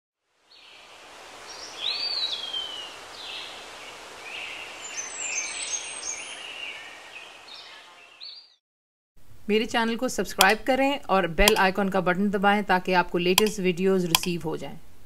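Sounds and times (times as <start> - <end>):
steady outdoor hiss: 0.2 - 8.2.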